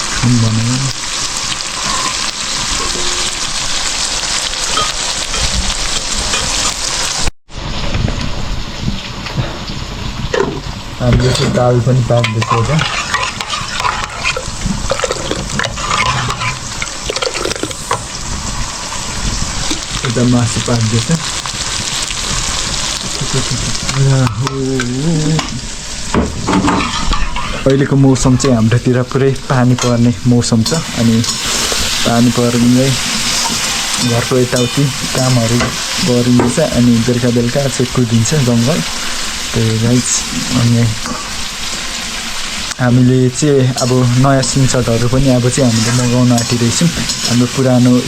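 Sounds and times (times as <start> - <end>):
food sizzling in a pan: 0.0 - 48.0
person speaking: 0.2 - 1.0, 11.0 - 14.3, 20.0 - 21.3, 23.2 - 25.7, 27.5 - 31.4, 32.0 - 33.1, 34.0 - 38.9, 42.8 - 48.0.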